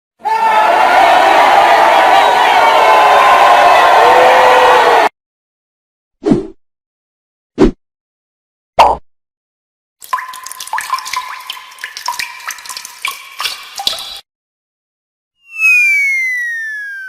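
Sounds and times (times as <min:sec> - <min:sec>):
water dripping and splashing: 0:10.0 - 0:14.2.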